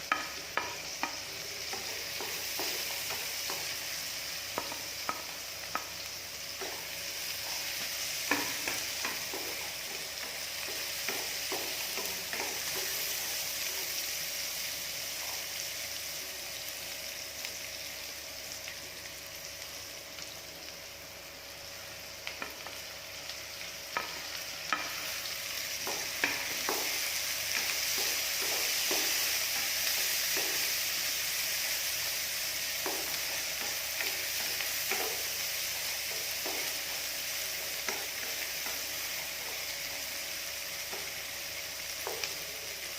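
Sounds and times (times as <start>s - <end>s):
vegetables sizzling in hot oil: 0.0s - 42.9s.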